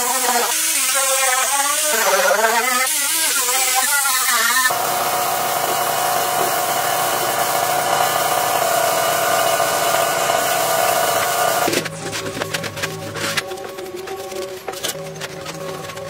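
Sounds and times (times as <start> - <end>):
power tool motor running: 0.0 - 11.7.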